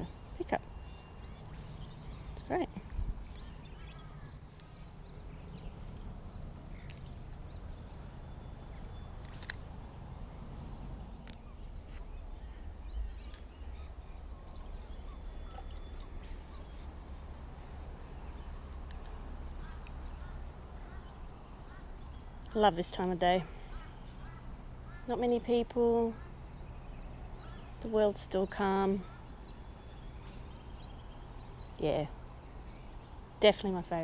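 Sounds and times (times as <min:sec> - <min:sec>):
sharp clicks: 0:09.2 - 0:09.8.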